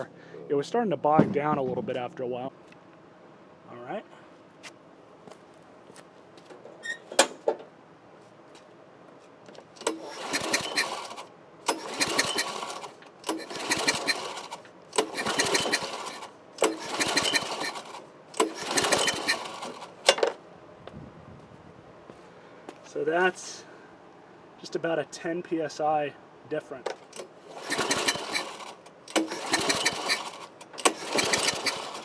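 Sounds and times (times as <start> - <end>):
engine pull-starter cranking: 9.8 - 20.4, 27.0 - 32.0.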